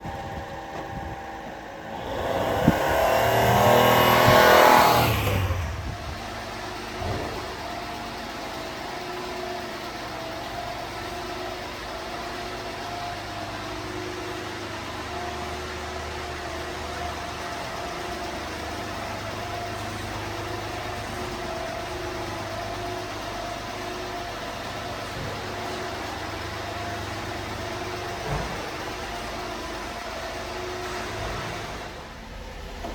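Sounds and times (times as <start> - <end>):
truck engine idling: 0.0 - 32.9.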